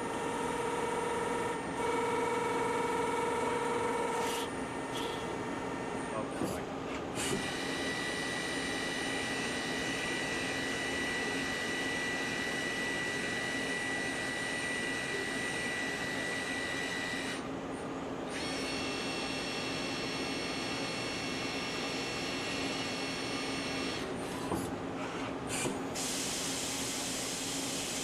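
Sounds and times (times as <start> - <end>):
lathe high whine: 7.2 - 17.4, 18.3 - 24.1.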